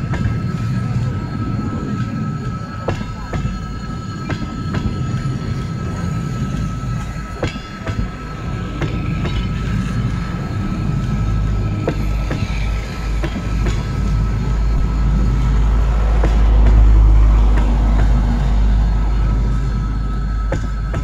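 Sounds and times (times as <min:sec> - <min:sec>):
thin high whine: 0:00.0 - 0:21.0
train wheels rumbling on rails: 0:00.0 - 0:21.0.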